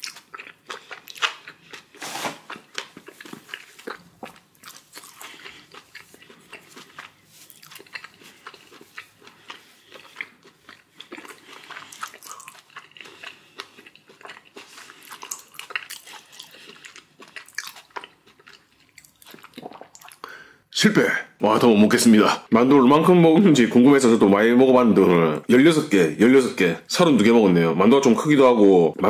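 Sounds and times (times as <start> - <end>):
person chewing: 0.0 - 20.4.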